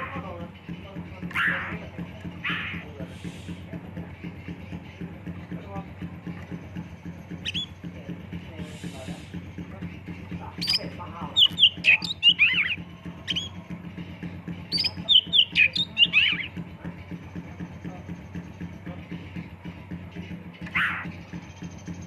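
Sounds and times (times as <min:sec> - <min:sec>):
steady low hum: 0:00.0 - 0:22.0
bird singing whistled notes: 0:06.5 - 0:08.0, 0:10.5 - 0:13.7, 0:14.6 - 0:18.7.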